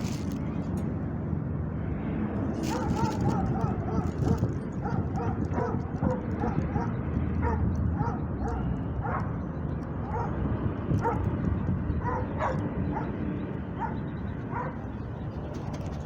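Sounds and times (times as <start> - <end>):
low city background rumble: 0.0 - 16.0
dog barking: 2.6 - 9.4, 10.0 - 10.4, 11.0 - 11.3, 12.0 - 13.2, 13.8 - 14.8.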